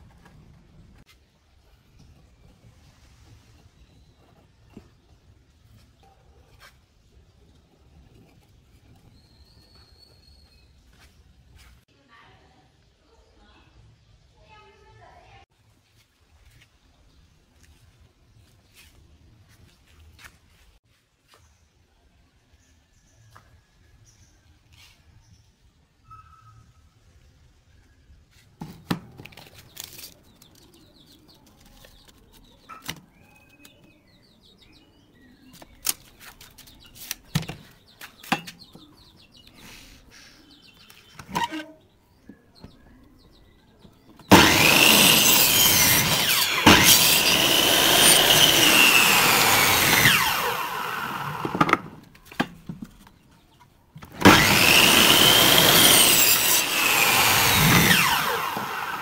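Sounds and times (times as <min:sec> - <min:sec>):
miter saw cutting wood: 0:44.3 - 0:52.0, 0:54.1 - 0:59.0.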